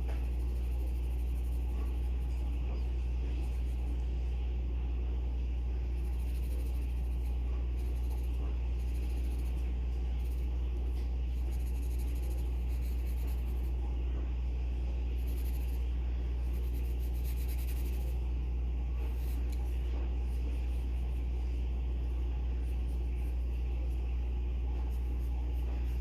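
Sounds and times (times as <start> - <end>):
pencil scratching on paper: 0.0 - 4.2, 5.7 - 13.8, 15.1 - 18.2, 19.0 - 26.0
low hum: 0.0 - 26.0.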